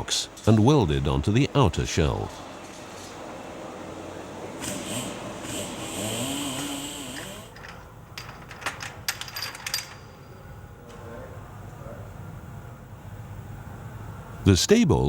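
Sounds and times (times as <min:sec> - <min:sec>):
power tapping tool motor: 0:04.6 - 0:07.6.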